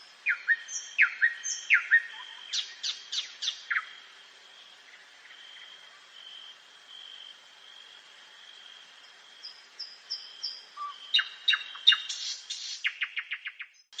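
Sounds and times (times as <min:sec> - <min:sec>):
nightingale singing: 0:00.0 - 0:05.8, 0:09.4 - 0:14.0.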